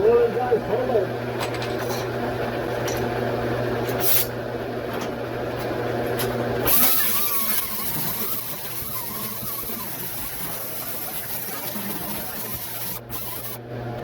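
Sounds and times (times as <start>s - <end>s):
mechanical hum: 0.0s - 14.0s
loud hiss: 6.7s - 13.6s.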